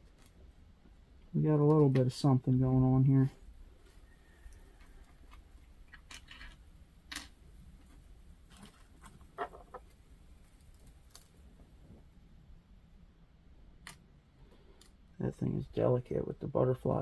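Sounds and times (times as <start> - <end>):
jewelry clinking: 5.9 - 7.4.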